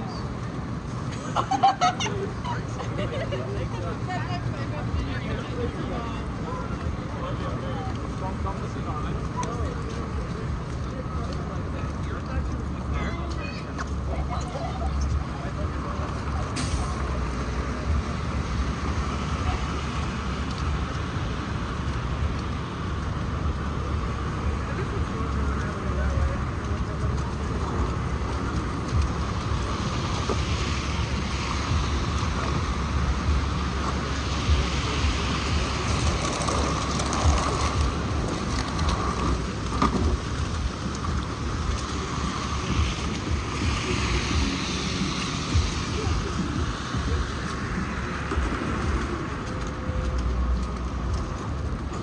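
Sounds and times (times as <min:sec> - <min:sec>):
traffic noise: 0:00.0 - 0:52.0
wind buffeting microphone: 0:17.0 - 0:52.0.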